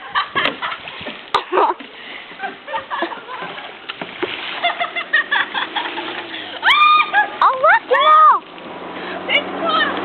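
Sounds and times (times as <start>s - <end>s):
water splashing: 0.0s - 10.0s
people shouting: 6.6s - 8.4s.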